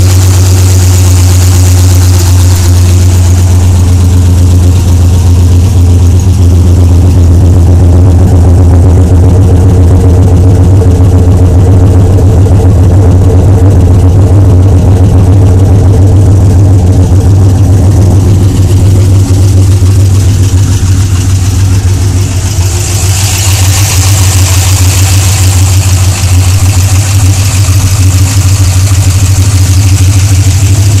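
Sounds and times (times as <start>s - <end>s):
engine running with low hum: 0.0s - 31.0s.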